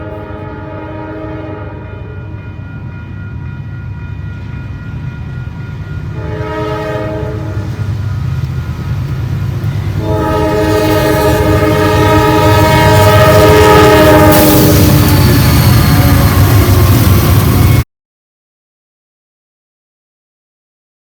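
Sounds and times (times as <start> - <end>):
locomotive air horn: 0.0 - 2.3, 6.1 - 7.8, 9.9 - 17.8
approaching train rumble: 0.0 - 17.8.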